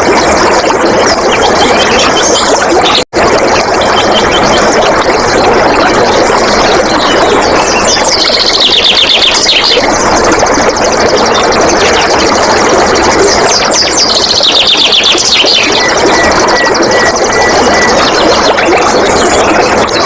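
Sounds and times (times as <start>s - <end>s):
running water rushing: 0.0s - 20.0s.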